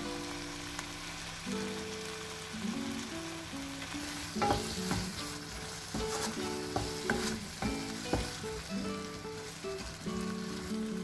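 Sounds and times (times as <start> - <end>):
masala sizzling in a wok: 0.0 - 11.0
soft background music: 0.0 - 11.0
wooden spatula stirring and scraping: 4.0 - 11.0
spatula knocking against pan: 4.4 - 8.7.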